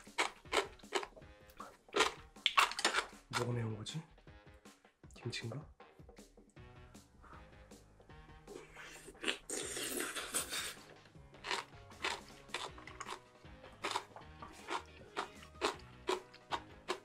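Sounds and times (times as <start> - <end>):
crunchy chewing: 0.0 - 3.5, 11.4 - 17.0
loud crunchy bite: 0.0 - 3.5, 9.0 - 10.8, 11.4 - 13.2, 13.8 - 17.0
soft background music: 0.0 - 17.0.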